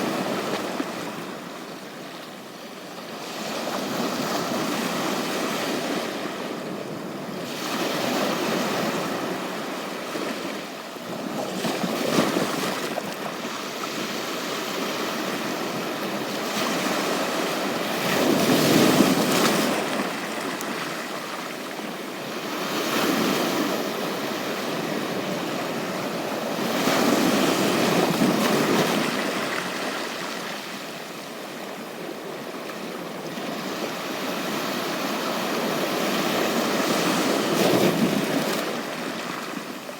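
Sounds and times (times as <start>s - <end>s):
sea waves breaking on beach: 7.4s - 31.2s.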